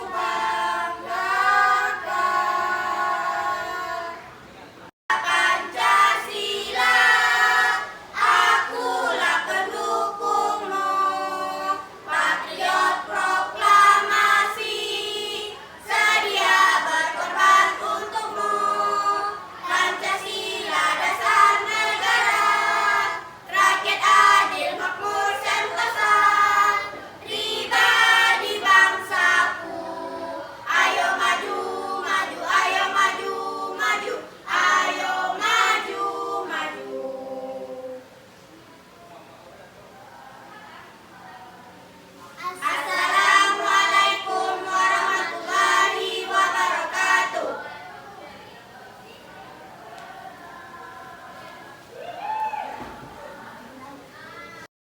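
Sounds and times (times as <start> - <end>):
choir of teenagers singing: 0.0 - 4.4, 5.1 - 38.3, 42.4 - 47.7.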